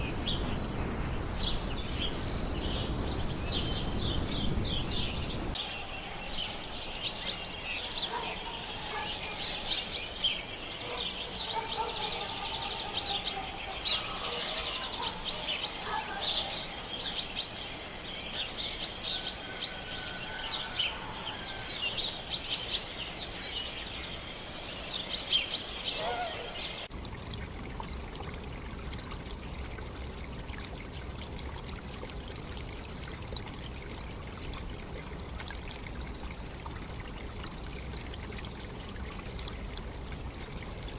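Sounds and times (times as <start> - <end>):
birds calling and chirping: 4.9 - 26.9
steady high hiss: 5.6 - 26.9
stream rushing: 5.6 - 26.9.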